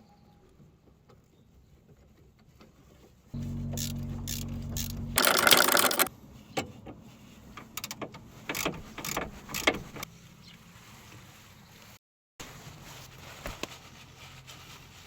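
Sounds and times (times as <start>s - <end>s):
loud rattling burst: 5.2s - 6.1s
ratchet clicking: 5.2s - 6.1s.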